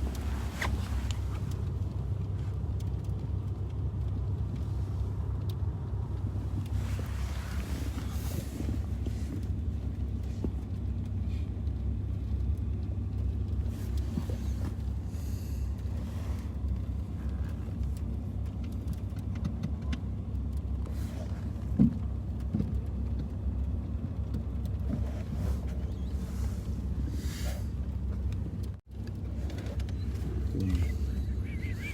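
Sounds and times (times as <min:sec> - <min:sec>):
car cabin low rumble: 0:00.0 - 0:31.9.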